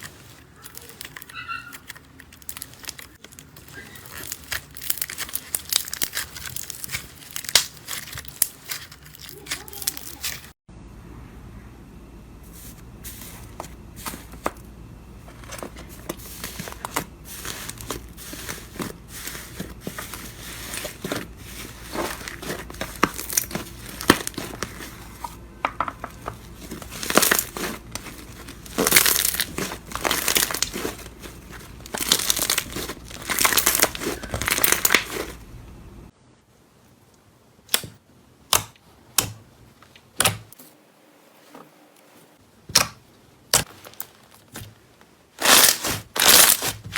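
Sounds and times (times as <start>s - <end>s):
slime crackling and popping: 0.6s - 10.5s, 20.6s - 25.2s, 26.5s - 35.4s, 45.4s - 46.9s.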